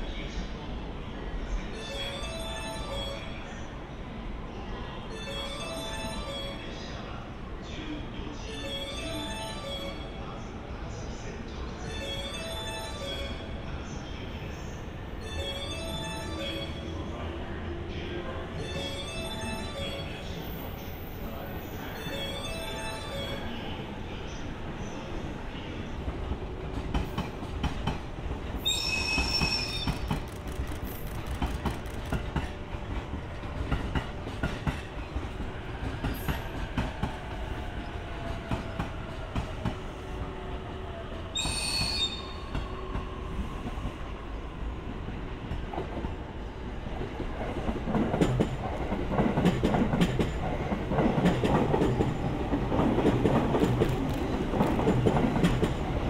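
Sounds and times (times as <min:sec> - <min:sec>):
train rumbling: 0:13.7 - 0:56.0
wheel squeals: 0:28.6 - 0:31.3.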